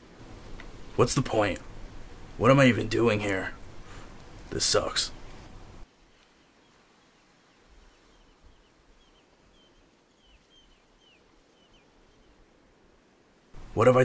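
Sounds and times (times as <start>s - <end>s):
faint bird chirps: 6.1s - 12.4s.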